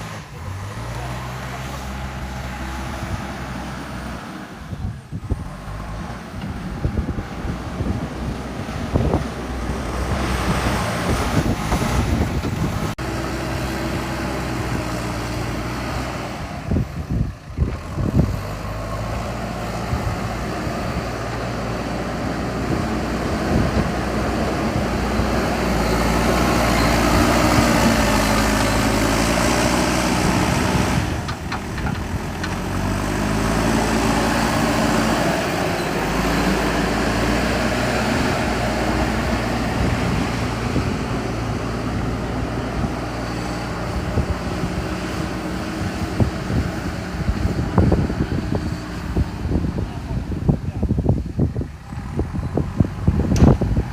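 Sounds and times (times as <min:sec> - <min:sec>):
diesel engine under hydraulic load: 0:00.0 - 0:53.9
bumps and knocks: 0:31.3 - 0:32.6.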